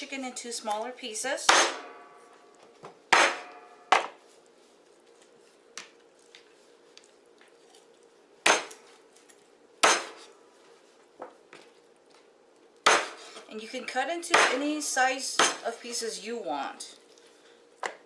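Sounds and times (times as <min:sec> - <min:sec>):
cleaver chopping meat and bone: 0:01.5 - 0:01.9, 0:03.1 - 0:04.2, 0:08.4 - 0:08.8, 0:09.8 - 0:10.3, 0:12.8 - 0:13.2, 0:14.3 - 0:14.7, 0:15.4 - 0:15.6.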